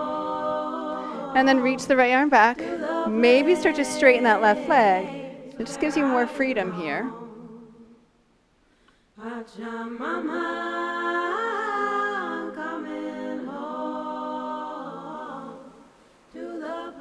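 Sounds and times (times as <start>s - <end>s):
person singing unaccompanied: 0.0s - 7.5s.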